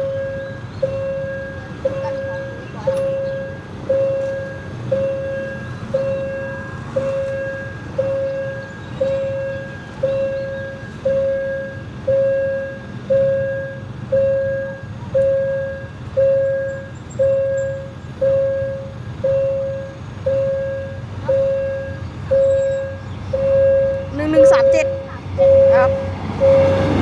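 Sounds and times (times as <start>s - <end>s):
level crossing bell ringing: 0.0s - 27.0s
low rumble: 18.3s - 27.0s.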